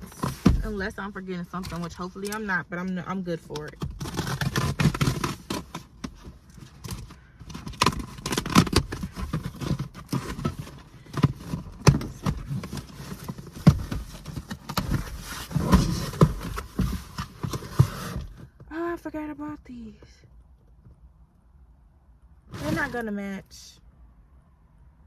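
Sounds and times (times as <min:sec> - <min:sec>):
box being unpacked: 0:00.0 - 0:00.9, 0:03.6 - 0:18.5, 0:22.5 - 0:23.0.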